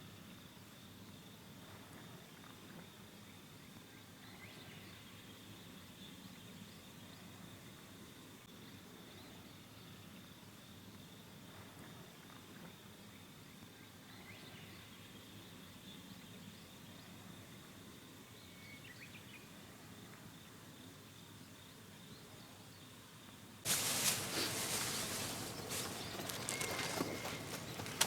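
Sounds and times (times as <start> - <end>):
faint chirps: 23.7 - 28.0
insects trilling: 23.7 - 28.0
loud crackling rustling noise: 23.7 - 28.0.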